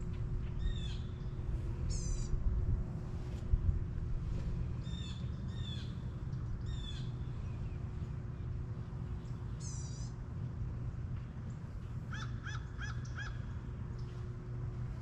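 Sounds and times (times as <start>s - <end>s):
steady low rumble: 0.0s - 15.0s
bird calling: 1.9s - 2.3s, 6.6s - 7.5s, 9.6s - 10.2s, 12.1s - 13.6s.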